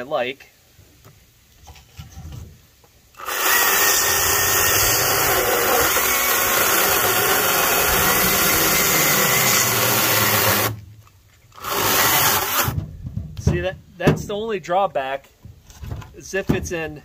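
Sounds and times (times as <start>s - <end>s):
chainsaw cutting log: 3.2s - 10.8s, 11.6s - 12.8s.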